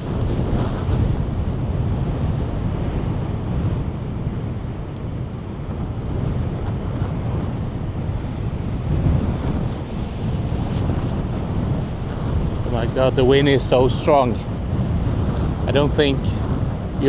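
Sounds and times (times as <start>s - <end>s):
waves breaking: 0.0s - 17.0s
wind buffeting microphone: 0.0s - 17.0s.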